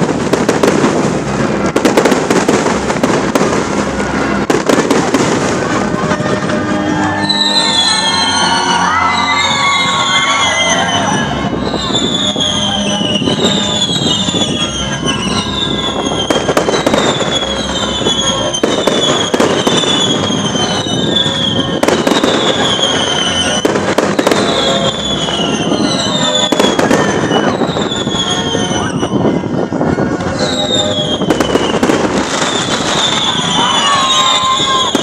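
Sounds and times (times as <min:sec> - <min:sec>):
fireworks bangs and crackles: 0:00.0 - 0:35.0
whistling firework shells: 0:07.2 - 0:29.2, 0:30.4 - 0:35.0.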